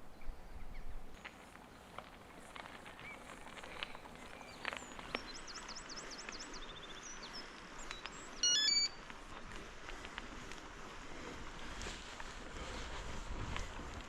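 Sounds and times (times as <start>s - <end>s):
small bird chirping: 4.2s - 9.0s
electronic chime: 8.4s - 9.0s.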